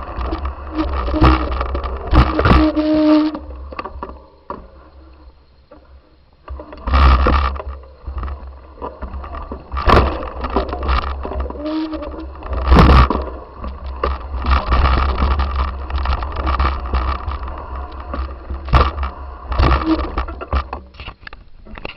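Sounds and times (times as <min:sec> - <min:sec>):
scraping and rattling: 0:00.0 - 0:21.9.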